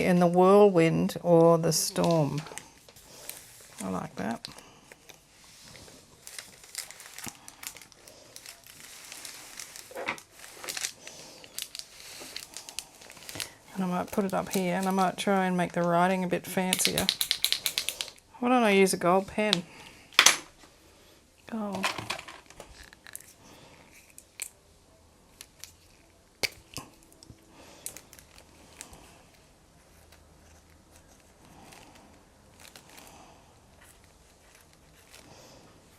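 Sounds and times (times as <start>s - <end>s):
paper rustling and crinkling: 5.4s - 15.9s, 33.8s - 35.9s
small clicks and taps: 16.7s - 18.2s.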